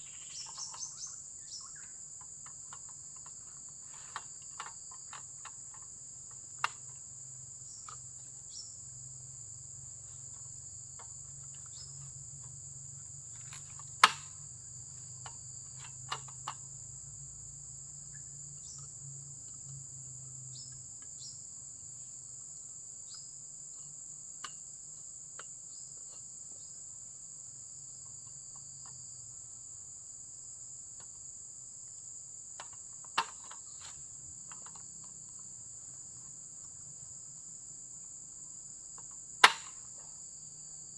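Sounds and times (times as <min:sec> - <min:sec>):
crickets chirring: 0:00.0 - 0:40.9
sharp clicks and knocks: 0:02.2 - 0:07.0, 0:13.4 - 0:14.4, 0:32.6 - 0:35.2, 0:39.0 - 0:40.1.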